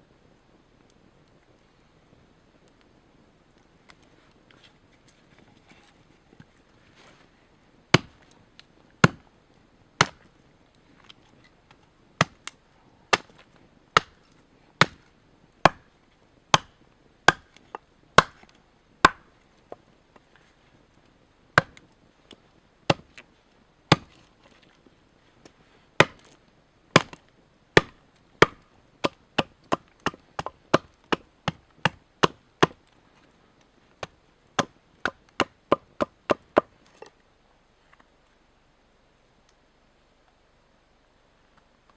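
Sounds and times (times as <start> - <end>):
blade chopping wood: 7.9 - 8.2, 9.0 - 9.2, 10.0 - 10.3, 12.2 - 13.4, 14.0 - 14.2, 14.8 - 15.9, 16.5 - 19.3, 21.6 - 21.8, 22.9 - 23.2, 23.9 - 24.2, 26.0 - 26.4, 27.0 - 27.2, 27.8 - 32.8, 34.0 - 36.7.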